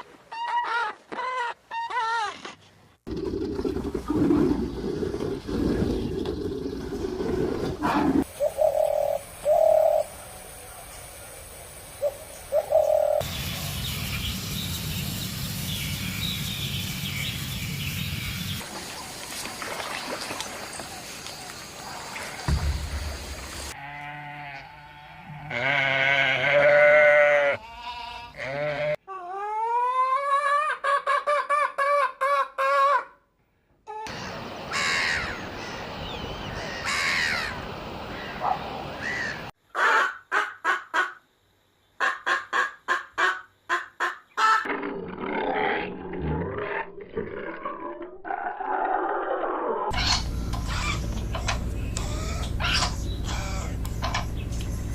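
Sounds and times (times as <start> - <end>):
bleating animal calls: 23.8 - 29.0, 51.9 - 54.2
noisy animal calls: 49.9 - 54.7.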